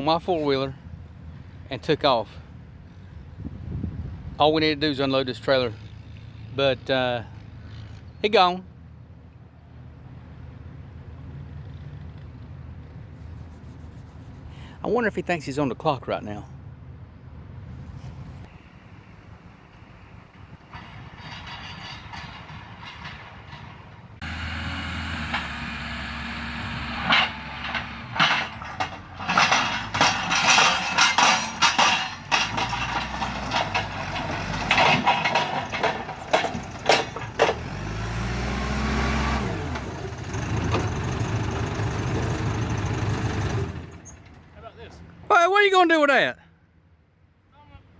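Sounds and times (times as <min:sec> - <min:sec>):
engine revving: 0:24.2 - 0:30.5, 0:32.2 - 0:44.0
vehicle engine running: 0:24.2 - 0:44.1
loud rattles and bangs: 0:27.0 - 0:37.9.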